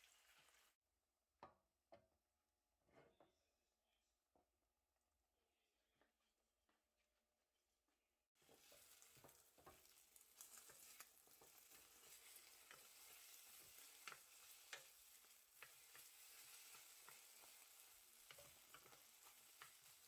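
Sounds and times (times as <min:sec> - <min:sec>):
food sizzling in a frying pan: 0:00.0 - 0:00.7, 0:08.4 - 0:20.0
utensil clicking against pan: 0:08.6 - 0:20.0.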